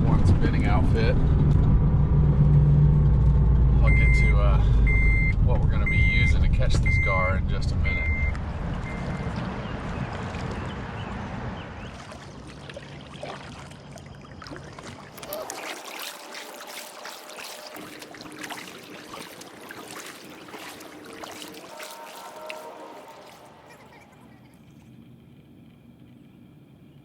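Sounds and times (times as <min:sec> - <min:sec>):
low vehicle rumble: 0:00.0 - 0:15.5
water trickling and splashing: 0:08.3 - 0:24.7.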